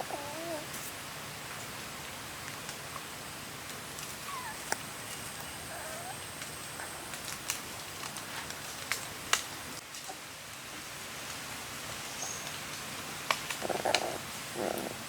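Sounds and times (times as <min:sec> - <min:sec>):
steady hiss: 0:00.0 - 0:15.0
puppies whimpering: 0:04.2 - 0:06.4.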